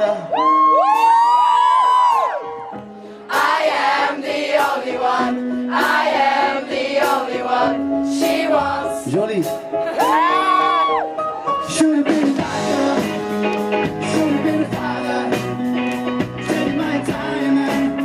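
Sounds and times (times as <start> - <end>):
live rock band: 0.0 - 18.0
person singing: 11.6 - 18.0.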